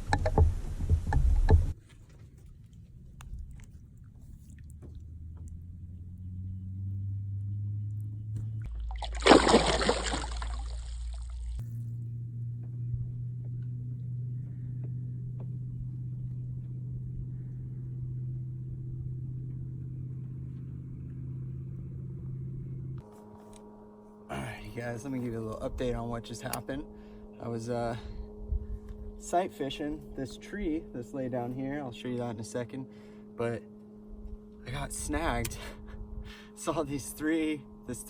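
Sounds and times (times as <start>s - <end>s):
boat motor humming: 0.0s - 38.0s
water rushing and splashing: 8.7s - 11.6s.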